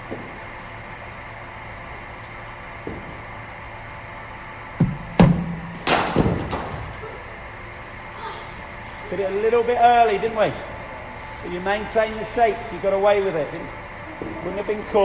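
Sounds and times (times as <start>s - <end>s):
bowling machine humming: 0.0s - 15.0s
bat striking ball: 4.8s - 6.9s.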